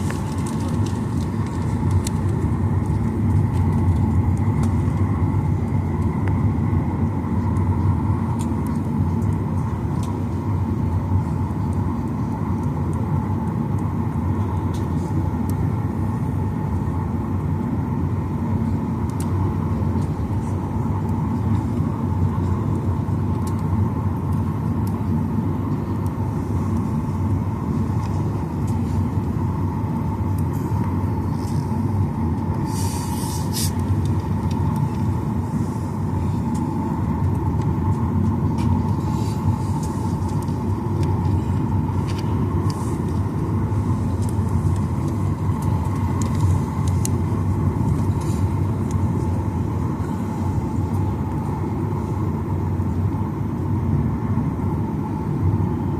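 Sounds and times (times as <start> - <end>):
cabin airflow: 0.0 - 55.9
jet engines low rumble: 0.0 - 55.9
brief hiss: 32.7 - 33.8.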